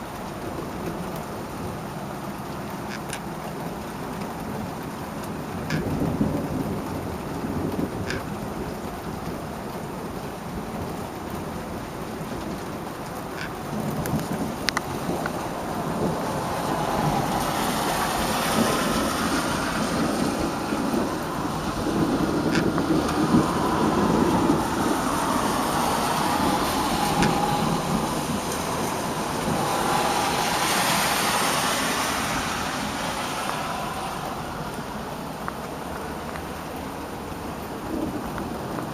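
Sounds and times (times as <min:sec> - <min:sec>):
steady rain falling: 0:00.0 - 0:38.9
low rumbling sound: 0:14.9 - 0:37.0.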